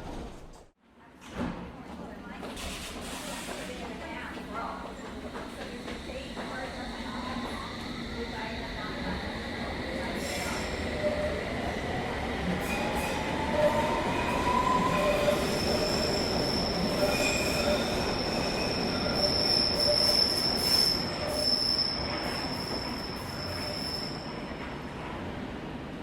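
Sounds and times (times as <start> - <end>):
train rumbling on rails: 2.2 - 26.0
high wheel squeal: 14.9 - 24.4.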